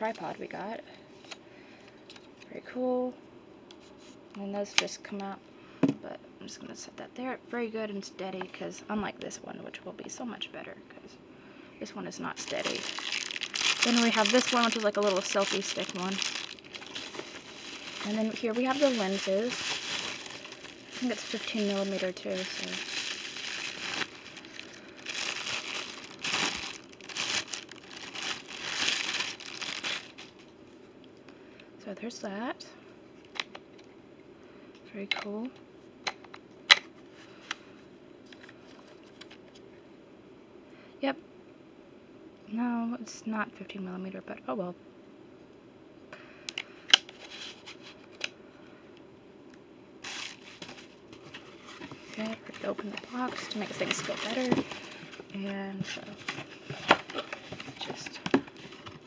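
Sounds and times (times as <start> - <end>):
plastic packaging crinkling: 12.3 - 30.5, 50.0 - 59.0.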